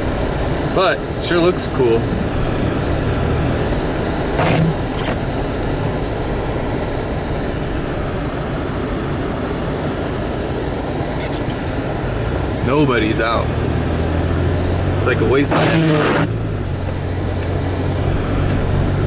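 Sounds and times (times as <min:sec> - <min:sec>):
vehicle engine rumble: 0:00.0 - 0:19.0
tyres on snow: 0:01.7 - 0:05.8, 0:13.2 - 0:19.0.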